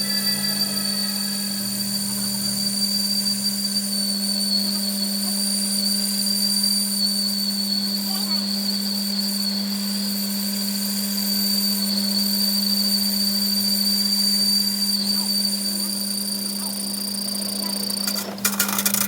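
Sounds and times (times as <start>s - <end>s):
workshop machine humming: 0.0s - 7.6s, 14.8s - 19.0s
high-pitched machine whine: 0.0s - 19.0s.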